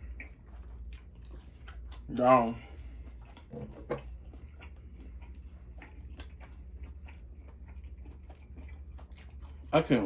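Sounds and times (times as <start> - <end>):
chewing and mouth smacking: 0.0 - 10.0.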